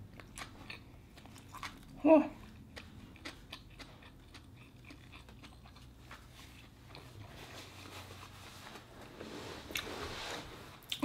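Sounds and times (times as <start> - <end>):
faint chewing of food: 0.0 - 8.3.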